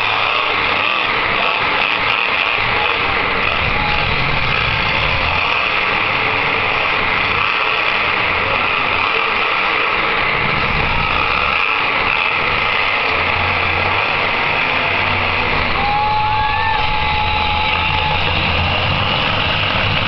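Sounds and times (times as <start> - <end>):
truck engines running loudly: 0.0 - 20.0
held high tone: 14.7 - 19.2.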